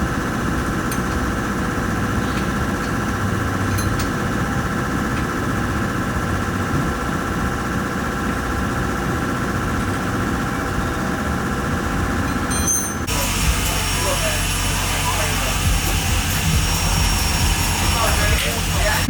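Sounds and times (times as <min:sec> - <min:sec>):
car engine idling: 0:13.1 - 0:19.0.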